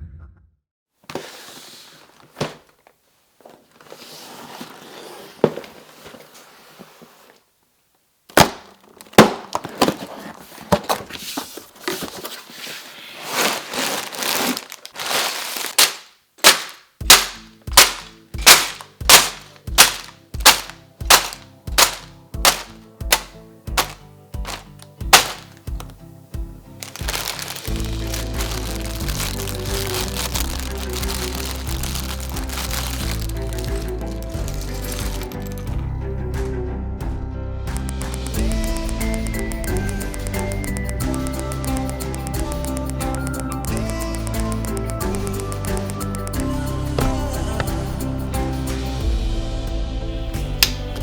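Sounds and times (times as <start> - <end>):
cardboard rustling: 1.0 - 7.4, 8.3 - 26.0, 26.8 - 35.6
cardboard box clicks and knocks: 15.8 - 25.9, 26.8 - 35.5
background music with steady beat: 16.5 - 51.0.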